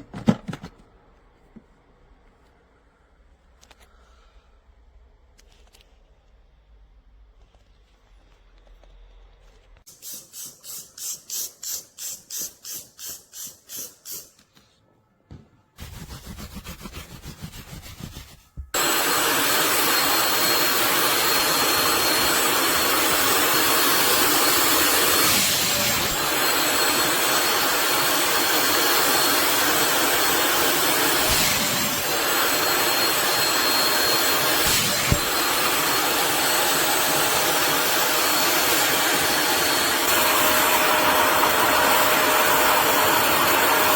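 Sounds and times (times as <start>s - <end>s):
quick hissing pulses: 9.9s - 14.4s
wet vacuum motor whining: 18.8s - 43.9s.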